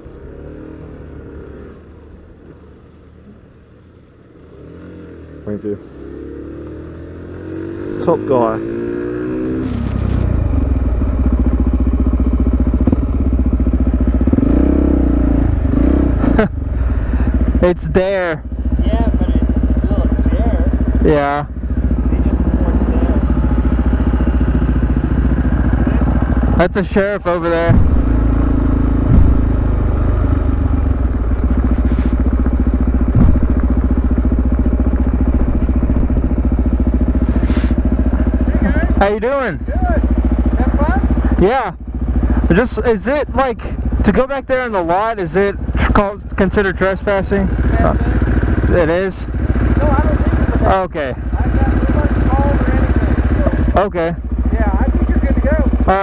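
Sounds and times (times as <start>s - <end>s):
motorcycle engine at low revs: 0.0s - 56.0s
short thumps: 27.6s - 37.4s.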